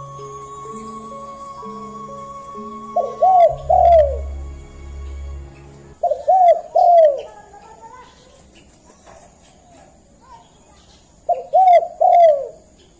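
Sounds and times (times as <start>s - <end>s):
low music drone: 0.0s - 6.8s
dove cooing: 6.0s - 7.4s, 11.3s - 12.6s.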